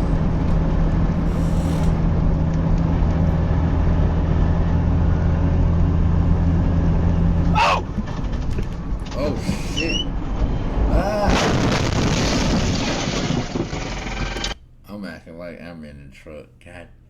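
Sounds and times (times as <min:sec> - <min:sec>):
truck engine droning: 0:00.0 - 0:14.6.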